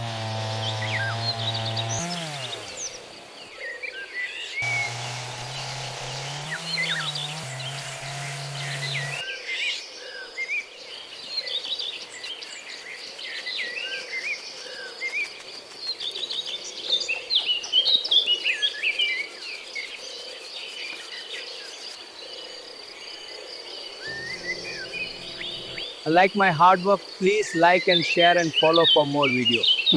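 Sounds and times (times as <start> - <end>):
birds chirping and singing: 0.0 - 3.6, 4.6 - 9.2, 24.1 - 29.9
high insect trill: 24.0 - 28.2
low hum: 24.1 - 26.0.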